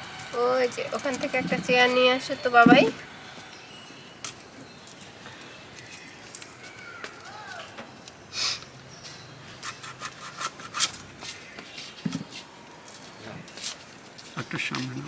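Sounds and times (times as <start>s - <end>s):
objects being handled: 9.1s - 14.4s.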